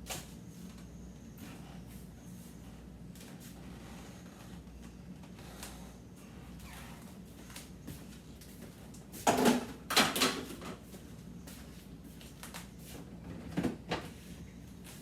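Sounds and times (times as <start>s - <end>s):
containers clattering in fridge: 9.2s - 10.8s.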